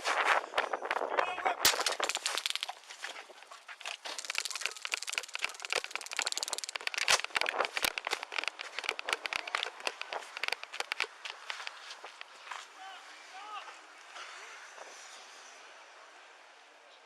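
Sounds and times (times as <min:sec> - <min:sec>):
clothing rubbing on microphone: 0:00.0 - 0:01.2, 0:02.8 - 0:12.4.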